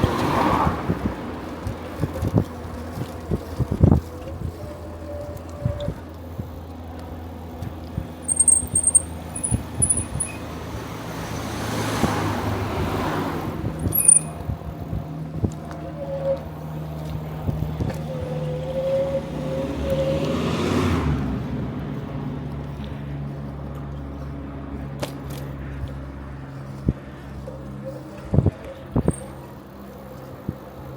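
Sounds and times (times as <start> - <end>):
bicycle rolling noise: 0.0 - 30.9
cars passing: 0.0 - 30.9
short high bird chirps: 8.3 - 10.4.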